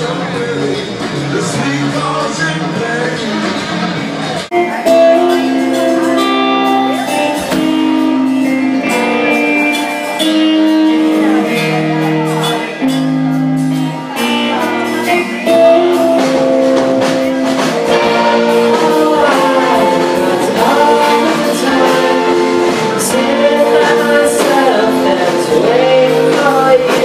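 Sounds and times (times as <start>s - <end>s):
live rock band with singing: 0.0s - 27.0s.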